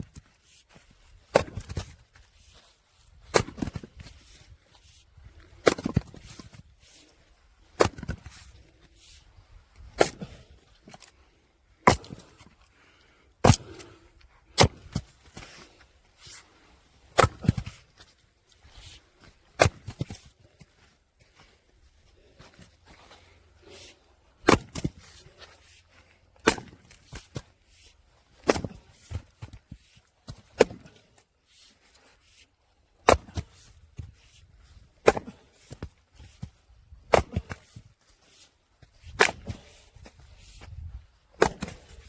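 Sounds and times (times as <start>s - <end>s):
logs cracking as they split: 24.4s - 25.0s, 26.4s - 27.4s, 28.3s - 29.6s, 38.8s - 40.1s, 41.3s - 42.0s.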